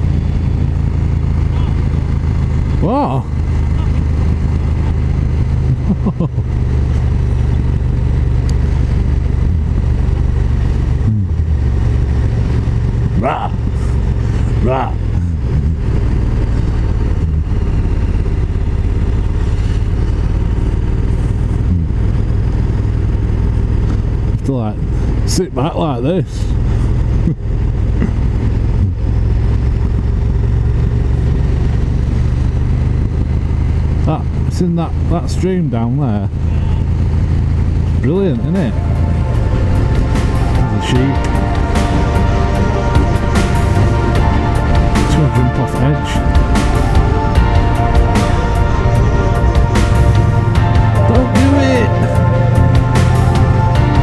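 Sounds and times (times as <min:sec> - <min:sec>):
motorcycle engine running: 0:00.0 - 0:25.3, 0:26.5 - 0:35.1, 0:36.3 - 0:45.0, 0:46.2 - 0:54.0
wind and road rush: 0:00.0 - 0:41.8.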